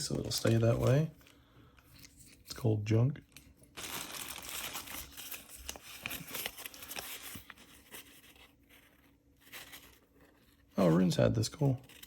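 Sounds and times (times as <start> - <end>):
paper and packaging rustling: 0.0 - 2.7, 3.3 - 12.0.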